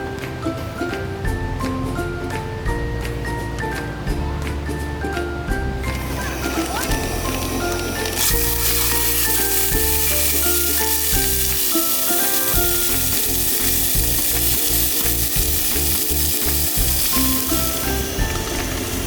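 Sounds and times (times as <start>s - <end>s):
background music: 0.0s - 19.0s
food sizzling in a pan: 6.1s - 19.0s.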